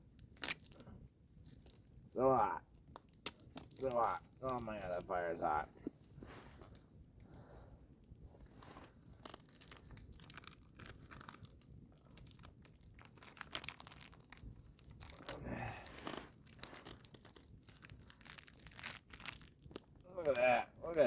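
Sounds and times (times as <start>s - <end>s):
packaging crinkling and tearing: 0.1s - 1.9s, 2.9s - 6.8s, 8.4s - 21.0s
packaging rustle: 8.3s - 21.0s.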